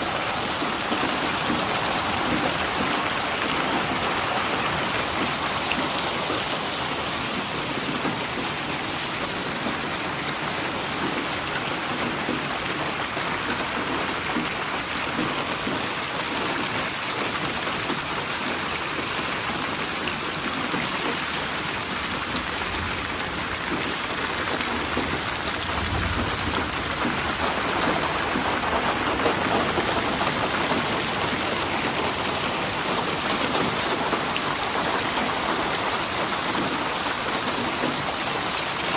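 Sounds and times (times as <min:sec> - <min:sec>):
rain pattering: 0:00.0 - 0:38.9
low rumble: 0:25.4 - 0:27.7.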